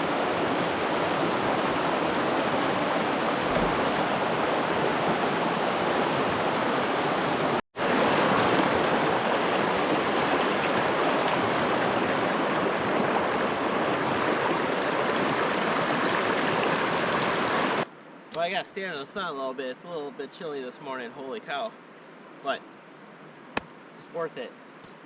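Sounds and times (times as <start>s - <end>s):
water rushing over rocks: 0.0s - 17.9s.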